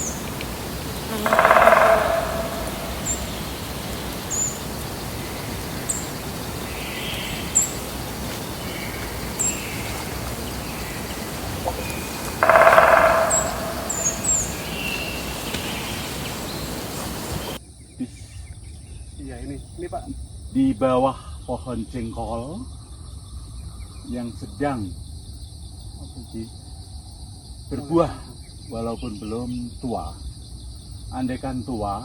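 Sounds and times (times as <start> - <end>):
birds chirping: 0.0 - 17.6
lower bird calls: 0.0 - 17.6
background hiss: 0.0 - 18.3.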